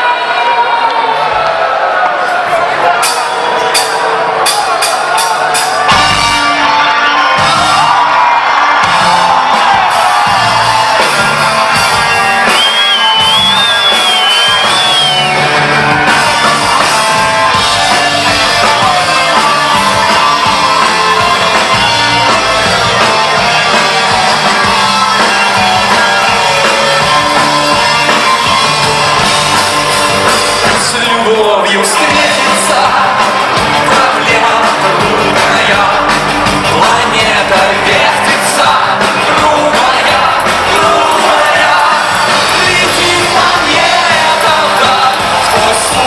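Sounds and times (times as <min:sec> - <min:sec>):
crowd shouting: 0:00.0 - 0:46.0
live rock band playing: 0:02.8 - 0:46.0
person singing: 0:16.0 - 0:28.8, 0:30.6 - 0:46.0.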